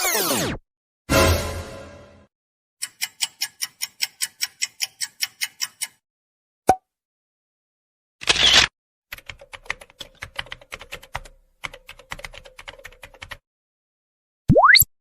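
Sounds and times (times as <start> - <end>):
clock-like ticks: 2.8 - 6.0.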